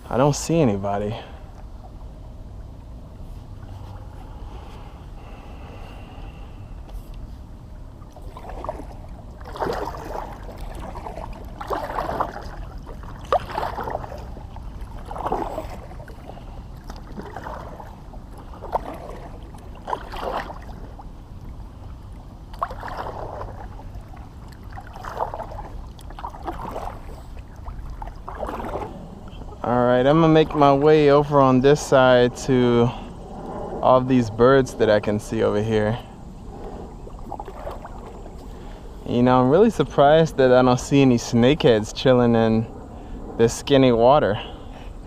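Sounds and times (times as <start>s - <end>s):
low steady rumble: 0.0s - 45.0s
paddle strokes swishing in water: 2.8s - 31.6s, 36.0s - 39.8s.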